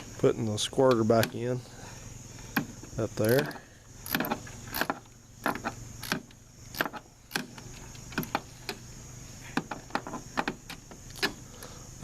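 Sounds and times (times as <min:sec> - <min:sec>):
tools clicking and knocking: 0:02.6 - 0:08.8.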